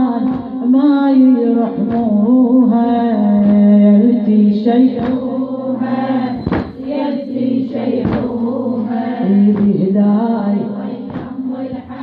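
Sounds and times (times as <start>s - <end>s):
sharp rhythmic beats: 0.0s - 0.8s, 1.7s - 4.0s, 4.9s - 10.0s, 10.6s - 12.0s
person singing a lament: 0.0s - 6.8s.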